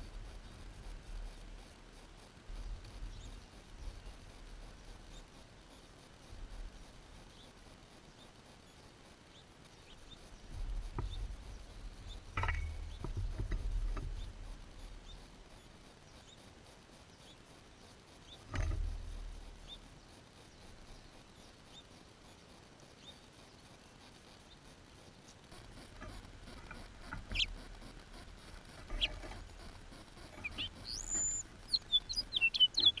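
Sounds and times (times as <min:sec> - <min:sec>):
light taps on bird feeder: 0:12.4 - 0:14.3
quick bird chirps: 0:25.6 - 0:33.0.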